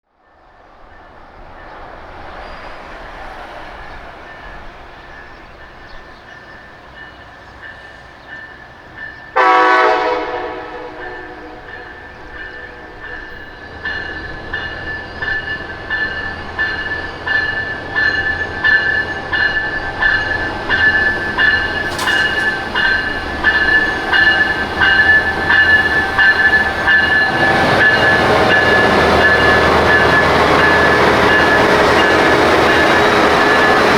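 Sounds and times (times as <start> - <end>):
train horn blast: 9.4 - 13.5
train wheels clicking: 10.9 - 33.9.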